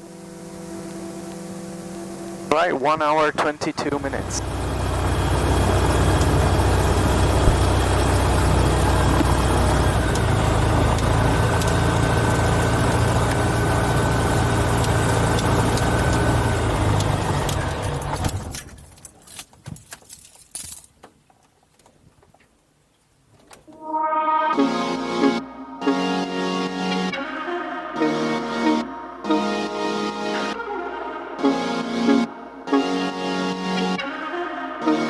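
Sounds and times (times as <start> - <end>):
engine clicks: 3.4 - 22.6
aircraft piston engine idling: 3.6 - 18.2.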